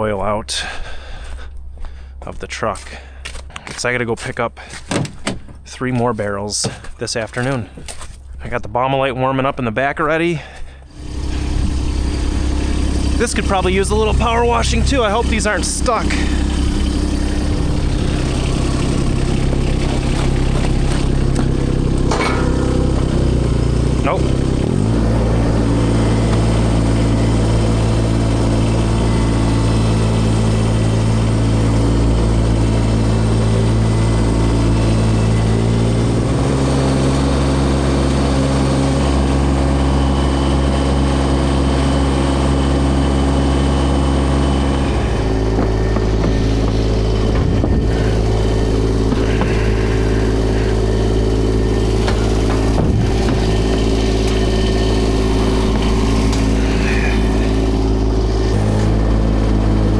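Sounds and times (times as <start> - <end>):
engine running: 0.0 - 8.6, 9.5 - 59.9.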